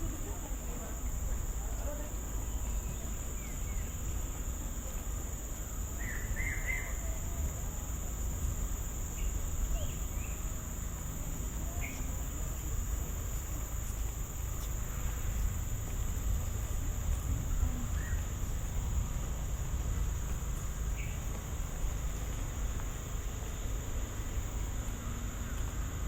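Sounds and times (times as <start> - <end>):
insects droning: 0.0 - 26.0
bird chirps: 6.0 - 7.1.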